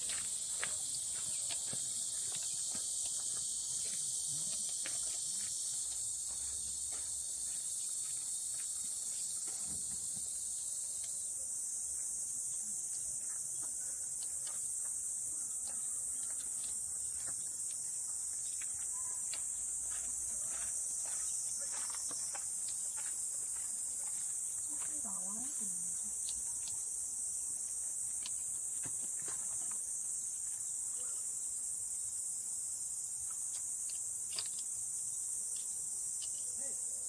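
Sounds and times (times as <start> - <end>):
high-pitched insect chorus: 0.0 - 37.0.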